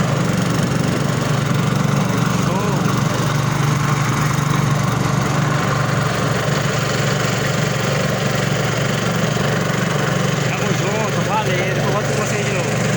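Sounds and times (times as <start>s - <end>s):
boat motor running: 0.0s - 12.9s.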